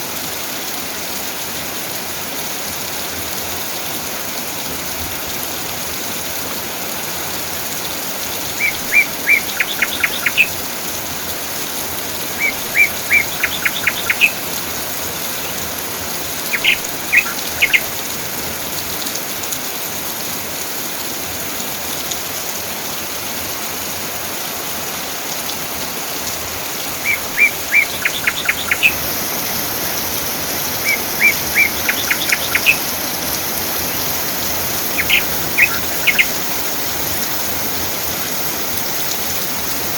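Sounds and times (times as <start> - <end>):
rain falling: 0.0 - 39.9
songbird singing: 7.5 - 18.2, 26.7 - 37.8.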